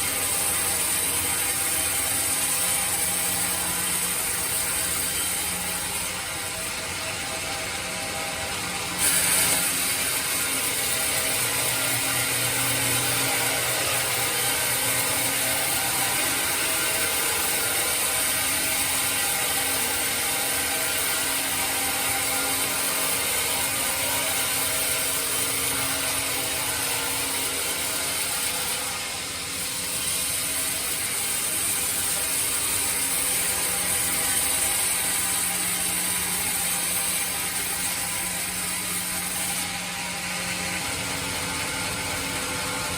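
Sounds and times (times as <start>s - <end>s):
bandsaw cutting wood: 8.9s - 40.0s.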